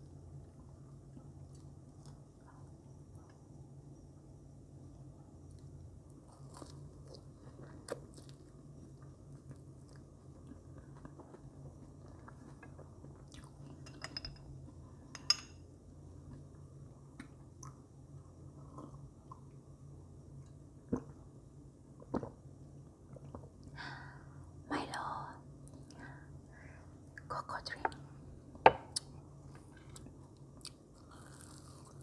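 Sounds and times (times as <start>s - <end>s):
chewing marshmallows: 5.5s - 13.8s, 29.0s - 32.0s.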